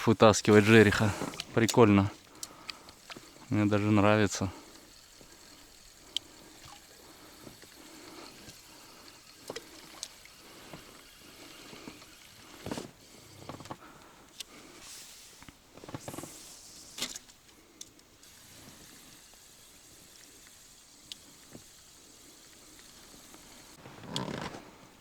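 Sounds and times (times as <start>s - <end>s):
quiet river water: 0.0s - 25.0s
small splashes and knocks: 4.4s - 11.0s.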